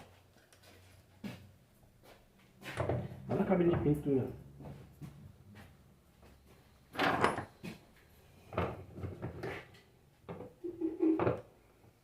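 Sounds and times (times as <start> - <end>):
knocks and clunks of metal parts: 6.9 - 7.8.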